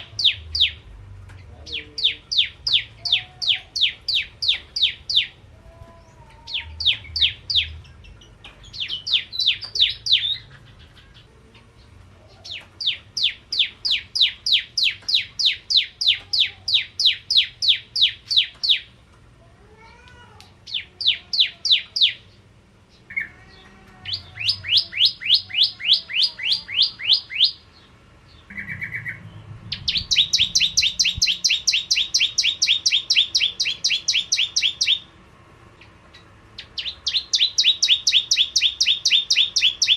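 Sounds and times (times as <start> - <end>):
bird singing rapid sharp chirps: 0.0 - 5.4, 6.5 - 18.9, 24.1 - 35.1, 35.8 - 39.9
soft low bird call notes: 28.5 - 35.0.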